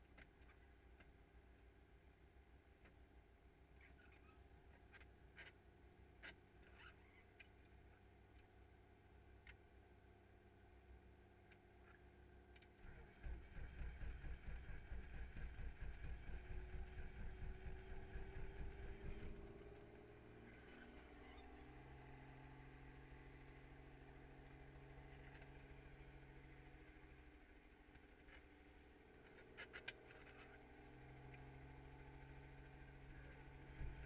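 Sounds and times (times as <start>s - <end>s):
faint scattered clicks: 6.2s - 8.6s, 9.3s - 9.7s, 10.7s - 12.9s.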